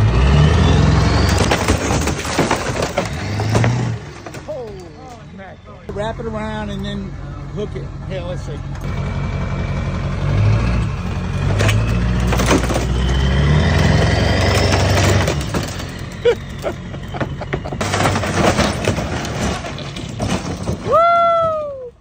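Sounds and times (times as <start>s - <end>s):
vehicle engine running under load: 0.0s - 20.8s
cracks and knocks of structure breaking: 1.2s - 4.9s, 11.5s - 13.1s, 14.0s - 21.2s.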